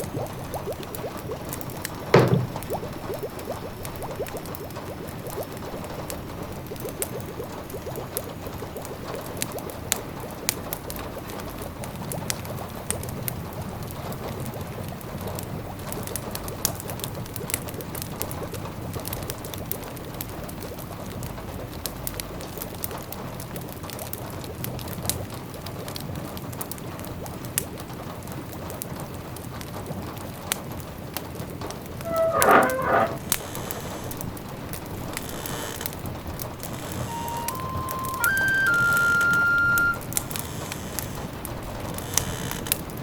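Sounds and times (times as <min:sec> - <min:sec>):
rain pattering on windows: 0:33.0 - 0:43.0.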